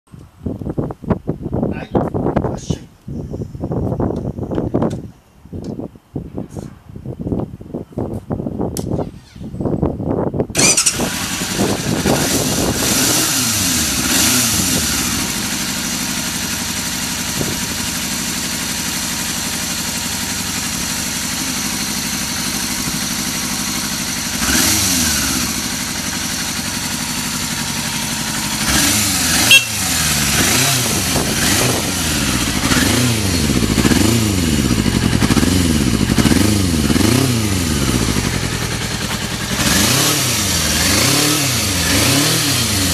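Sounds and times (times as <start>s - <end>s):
motorcycle engine revving: 10.5s - 42.9s
motorcycle starter cranking: 10.6s - 40.2s
motorcycle engine idling: 13.6s - 42.0s.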